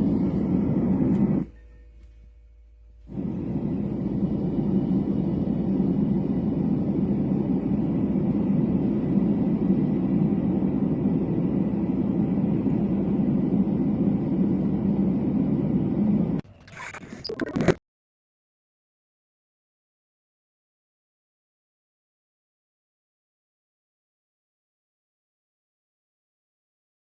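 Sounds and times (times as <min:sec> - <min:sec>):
sound machine deep steady noise: 0:00.0 - 0:17.7.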